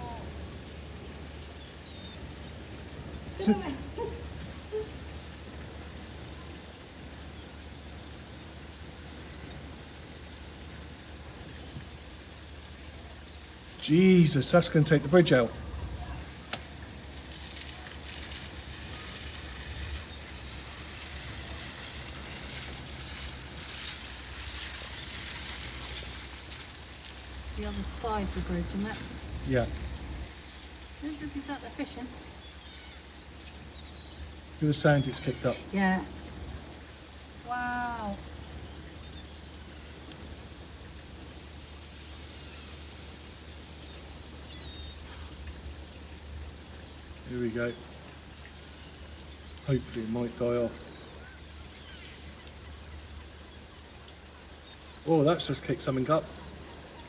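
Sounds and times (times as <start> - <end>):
wind buffeting microphone: 14.8 - 34.6.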